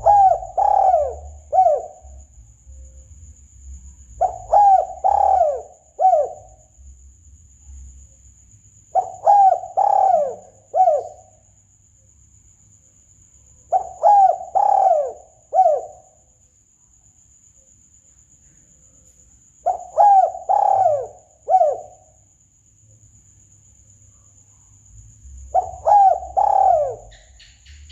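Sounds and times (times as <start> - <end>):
dove cooing: 0.0 - 2.3, 4.2 - 6.6, 8.9 - 11.3, 13.7 - 16.1, 19.6 - 22.1, 25.4 - 27.4.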